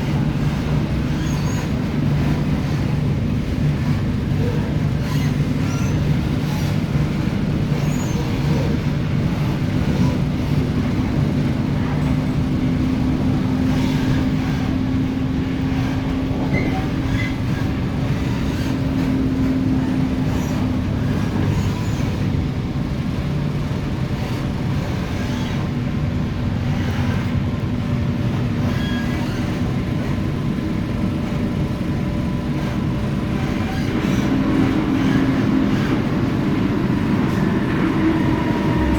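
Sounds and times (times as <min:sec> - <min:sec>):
low hum of traction equipment: 0:00.0 - 0:38.9
train running at speed: 0:00.0 - 0:38.9.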